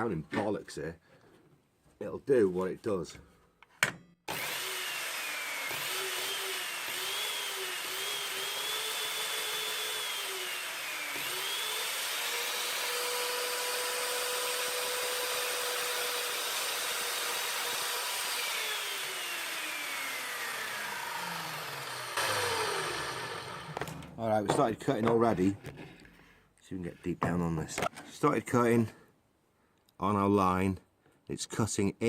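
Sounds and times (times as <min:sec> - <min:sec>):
mitre saw motor whining: 0:04.3 - 0:24.2.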